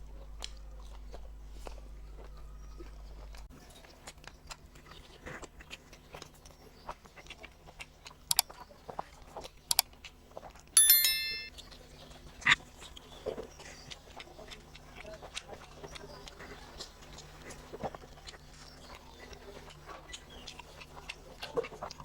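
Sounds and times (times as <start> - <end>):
quiet chewing: 0.0 - 10.8, 11.5 - 22.0
bright ringing tone: 10.8 - 11.5
sharp clinks: 10.8 - 11.5.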